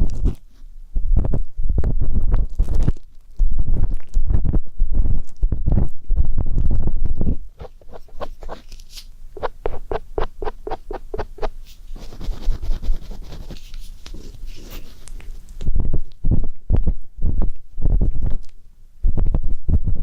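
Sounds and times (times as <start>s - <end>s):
ear pick scratching microphone: 3.7s - 15.0s
deep rubbing rumble: 4.4s - 8.7s, 9.4s - 11.6s.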